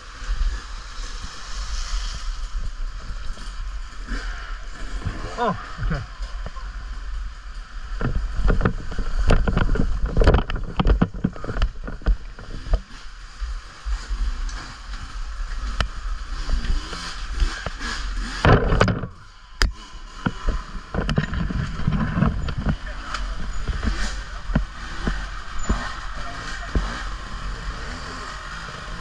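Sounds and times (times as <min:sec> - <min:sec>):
wind rumble on microphone: 0:00.0 - 0:14.2, 0:14.8 - 0:29.0
knocks and rattles: 0:02.8 - 0:13.0, 0:16.6 - 0:27.4.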